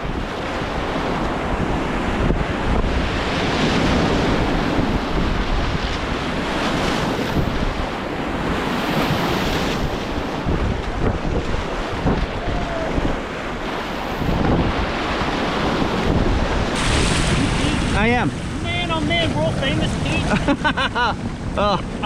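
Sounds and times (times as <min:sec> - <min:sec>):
wind noise on microphone: 0:00.0 - 0:22.0
whitewater rushing: 0:11.3 - 0:20.6.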